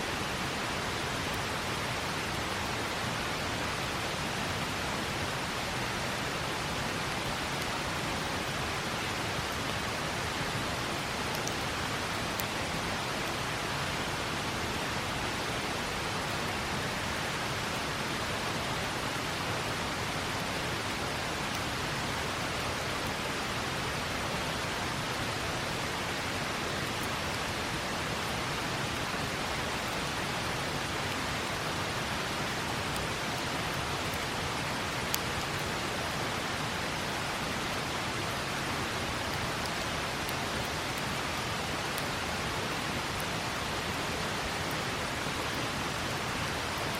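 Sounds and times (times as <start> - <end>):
river water rushing: 0.0 - 46.9
campfire crackles: 0.1 - 46.9.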